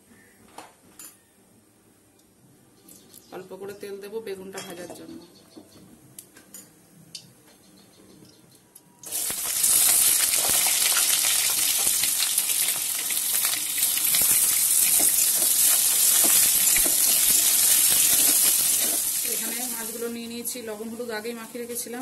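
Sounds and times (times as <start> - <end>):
eggplant sizzling in hot oil: 9.0 - 22.0.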